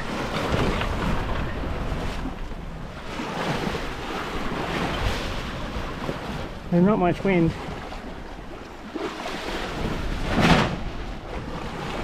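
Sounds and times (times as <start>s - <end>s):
water washing along hull: 0.0s - 12.0s
wind buffeting microphone: 0.0s - 12.0s.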